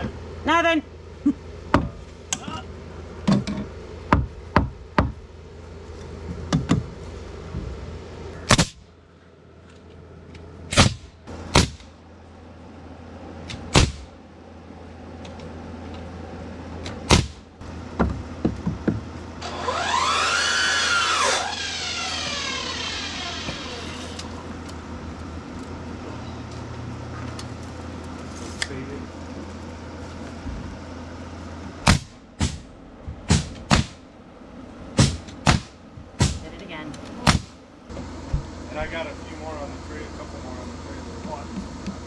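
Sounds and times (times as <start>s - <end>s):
nails hammered into wood: 11.6s - 11.8s, 13.7s - 14.0s, 17.1s - 17.4s, 33.3s - 34.0s, 35.0s - 36.5s, 37.2s - 37.6s
whine rising and falling: 19.4s - 31.7s.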